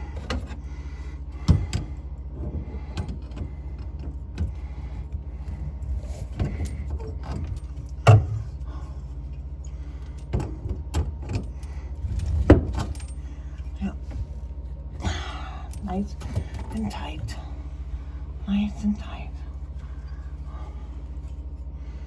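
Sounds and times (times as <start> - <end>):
pipe fittings clicking and clinking: 0.0 - 14.2
steady low hum: 0.0 - 22.0.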